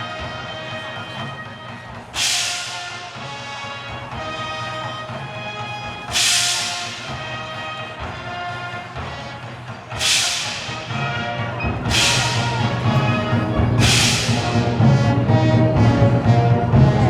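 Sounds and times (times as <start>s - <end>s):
wind band playing: 0.0s - 17.0s
crash cymbals struck: 2.0s - 3.5s, 5.9s - 8.0s, 9.9s - 14.9s.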